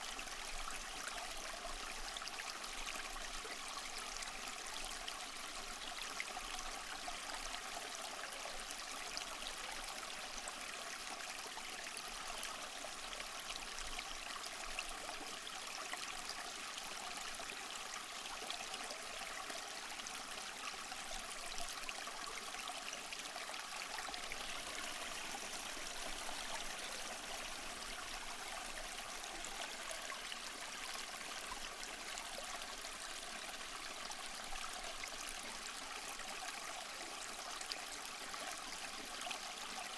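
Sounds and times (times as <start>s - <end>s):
small waterfall splashing: 18.3s - 39.9s.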